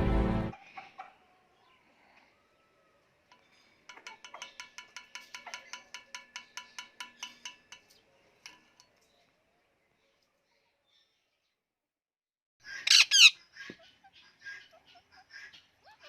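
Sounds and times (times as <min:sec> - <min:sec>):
rapid bell-like ringing ticks: 0:03.3 - 0:08.6.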